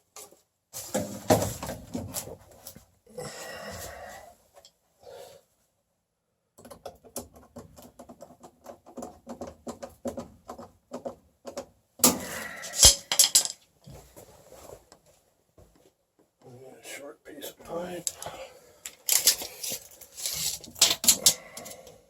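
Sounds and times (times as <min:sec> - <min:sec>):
tools and parts clicking and rattling: 0:06.6 - 0:13.7, 0:18.0 - 0:22.0.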